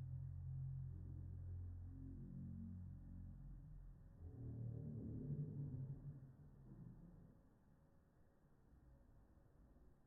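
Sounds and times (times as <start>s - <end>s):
faint low rumble: 0.0s - 7.4s.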